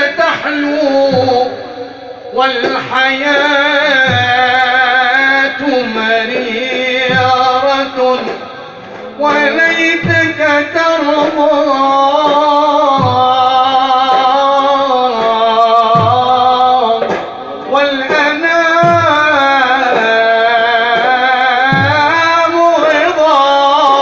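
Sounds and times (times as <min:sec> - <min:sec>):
instrumental accompaniment: 0:00.0 - 0:24.0
low beat: 0:00.0 - 0:24.0
man singing ornamented notes: 0:00.0 - 0:24.0.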